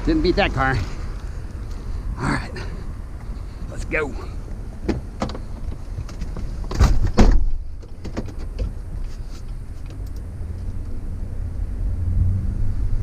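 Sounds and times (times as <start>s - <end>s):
vehicle engine rumbling: 0.0s - 13.0s
loud thumps: 6.6s - 8.4s.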